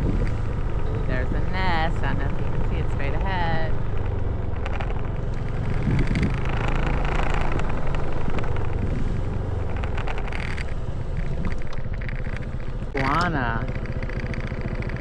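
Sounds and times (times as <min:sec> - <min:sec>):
motor scooter engine running: 0:00.0 - 0:15.0.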